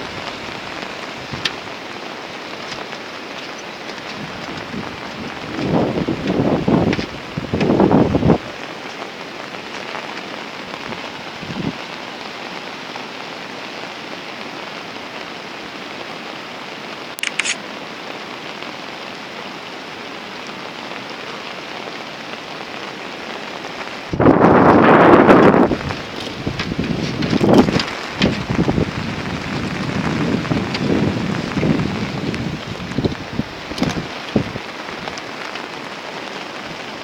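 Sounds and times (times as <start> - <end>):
wind gust buffeting microphone: 0.0 - 1.9, 3.8 - 8.6, 10.8 - 11.8, 24.1 - 35.2
heavy rain: 0.0 - 37.0.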